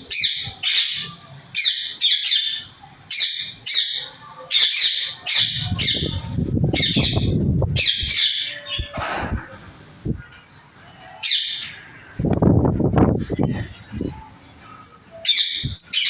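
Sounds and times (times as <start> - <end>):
parrots squawking: 0.0 - 9.7, 15.1 - 16.0.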